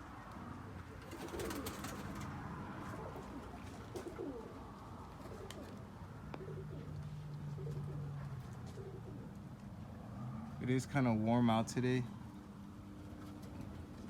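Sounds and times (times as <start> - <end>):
pigeons cooing: 0.0 - 10.5.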